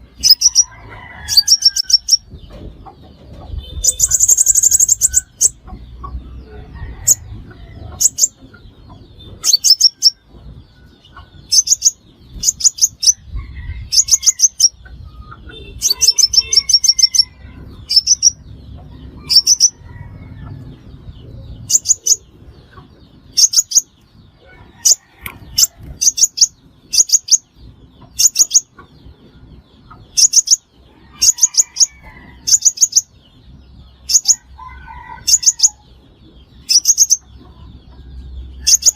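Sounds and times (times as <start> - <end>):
sunbird high-pitched chirps: 0.2 - 0.7, 1.3 - 2.4, 3.5 - 5.8, 7.9 - 10.2, 11.1 - 13.3, 13.9 - 18.5, 19.3 - 19.8, 23.3 - 24.1, 24.9 - 28.8, 30.1 - 34.6, 36.6 - 37.4.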